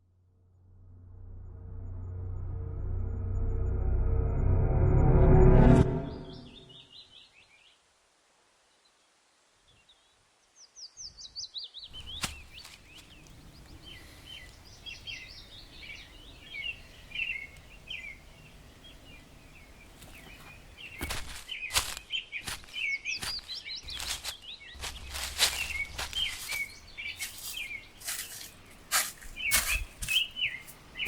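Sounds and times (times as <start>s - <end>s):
birds chirping: 10.8s - 31.0s.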